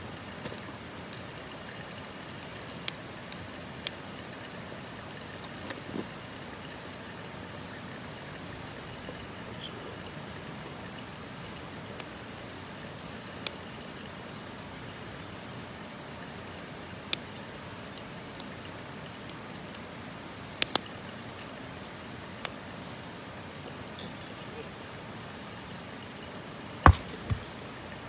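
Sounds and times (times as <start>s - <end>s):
campfire crackling hiss: 0.0s - 28.0s
sharp fire pops: 20.6s - 20.8s.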